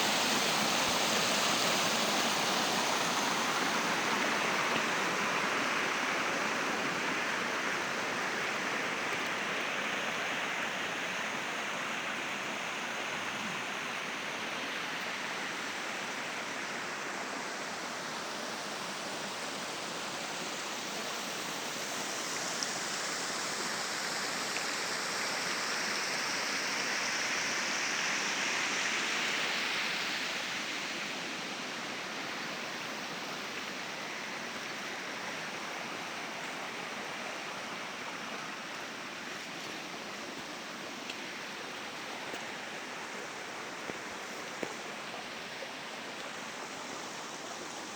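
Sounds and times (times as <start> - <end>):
stream water rushing: 0.0 - 47.9.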